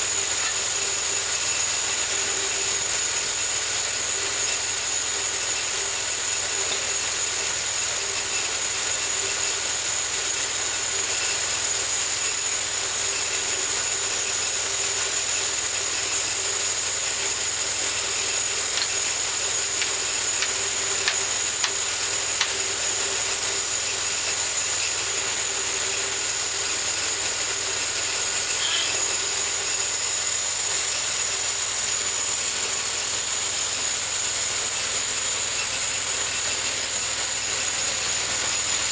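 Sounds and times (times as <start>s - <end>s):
bandsaw mill whining: 0.0s - 38.9s.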